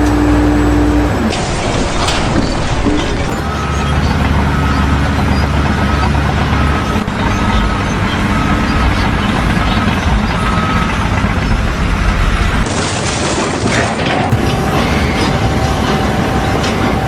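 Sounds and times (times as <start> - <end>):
heavy vehicle engine running: 0.0 - 17.0
reversing alarm beeping: 0.8 - 12.6.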